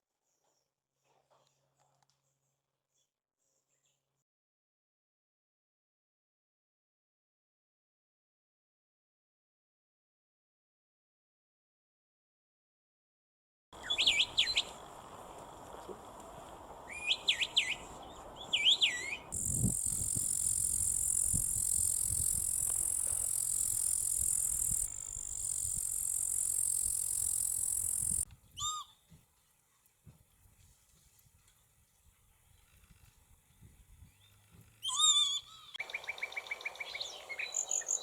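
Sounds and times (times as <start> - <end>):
bird whistled notes: 13.8 - 14.8, 16.9 - 28.9
bird high-pitched buzzing trill: 18.6 - 28.8, 34.9 - 38.0.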